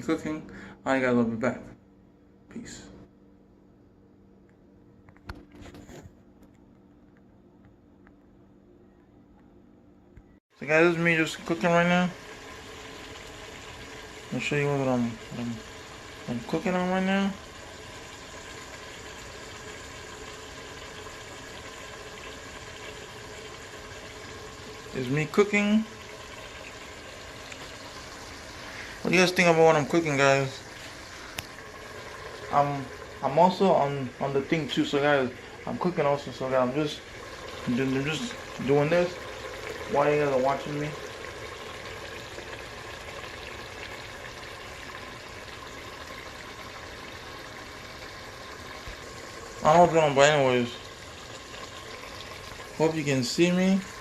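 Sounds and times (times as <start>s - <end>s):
food sizzling on stovetop: 10.6s - 54.0s
food hissing on stovetop: 11.8s - 29.4s.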